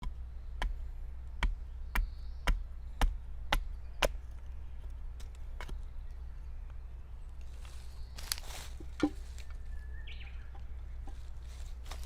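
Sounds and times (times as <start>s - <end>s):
hatchet chopping wood: 0.0s - 4.4s, 5.2s - 5.9s.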